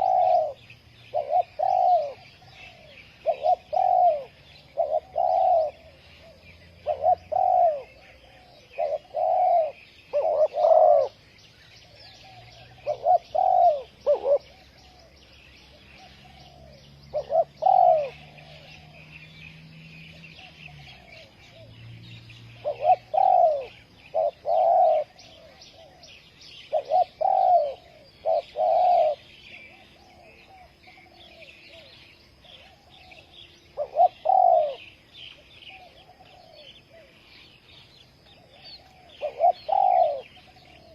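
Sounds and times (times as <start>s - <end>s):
dove cooing: 0.0s - 40.9s
small birds chirping: 0.0s - 40.9s.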